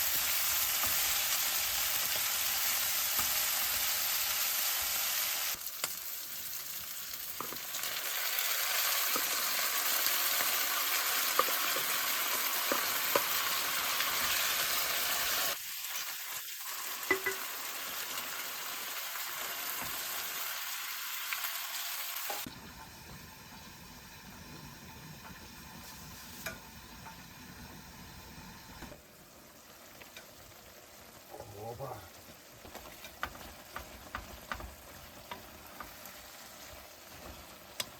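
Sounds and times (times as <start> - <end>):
meat sizzling in hot fat: 0.0 - 37.9.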